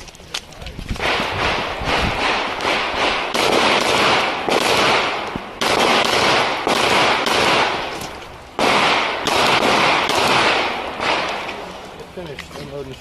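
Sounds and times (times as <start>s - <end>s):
pistol shots with echo: 1.0s - 8.0s, 8.6s - 11.6s.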